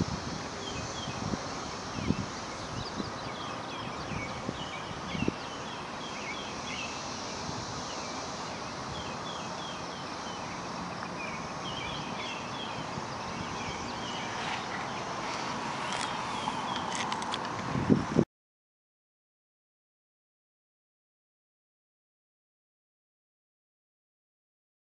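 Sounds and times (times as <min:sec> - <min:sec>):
steady background hiss: 0:00.0 - 0:18.2
birds chirping: 0:00.6 - 0:17.4.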